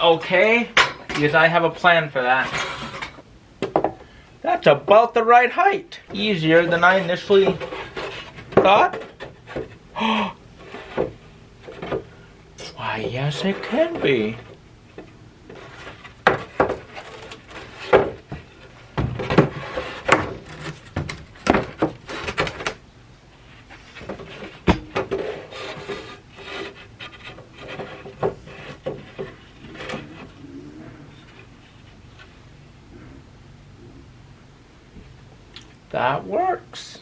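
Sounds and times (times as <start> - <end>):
wood scraping: 0.0 - 3.3, 4.0 - 33.1
wooden boards clacking: 6.1 - 9.8, 13.0 - 22.8, 24.0 - 30.3.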